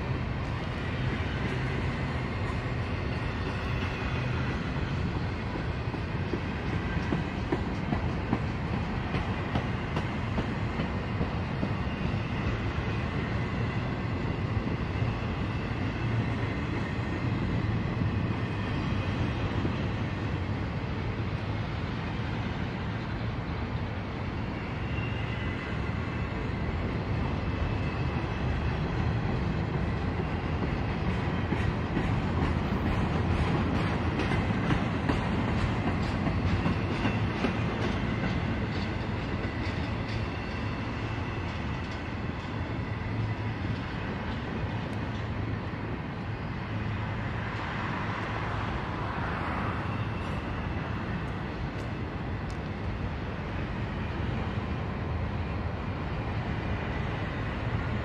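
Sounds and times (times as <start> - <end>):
train wheels rumbling on rail: 0.0 - 58.0
wheels clicking over rail joints: 29.0 - 45.5.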